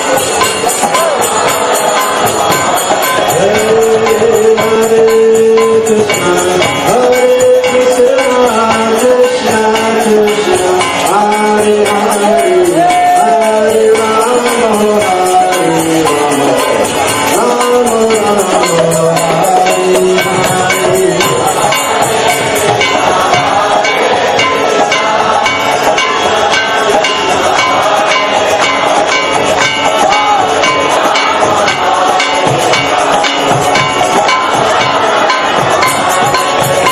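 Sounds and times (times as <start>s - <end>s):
drum: 0.0s - 36.9s
jingling hand percussion: 0.0s - 36.9s
person singing: 0.0s - 36.9s.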